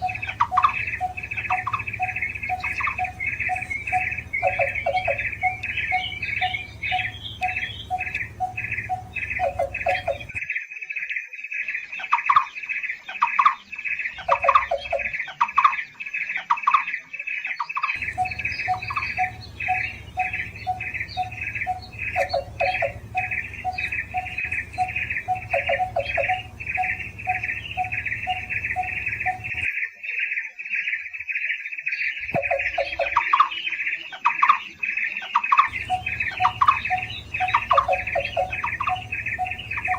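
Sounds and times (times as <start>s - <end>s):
bird calling short repeated notes: 0.0s - 10.4s, 18.0s - 29.7s, 35.7s - 39.9s.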